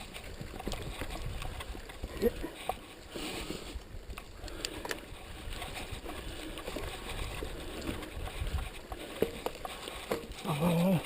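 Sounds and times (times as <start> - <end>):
wind rumble on microphone: 0.0 - 2.5, 3.6 - 9.5
bike rattling on rough trail: 0.0 - 11.0.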